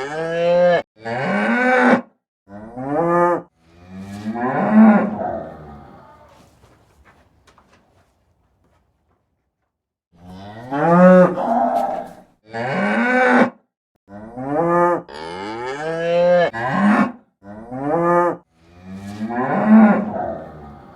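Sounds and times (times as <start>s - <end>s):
cattle mooing: 0.0s - 6.5s, 10.2s - 13.5s, 14.1s - 20.9s.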